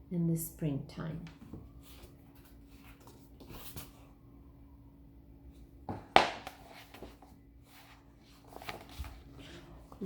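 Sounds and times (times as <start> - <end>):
sharp tap handling book: 6.1 - 7.1.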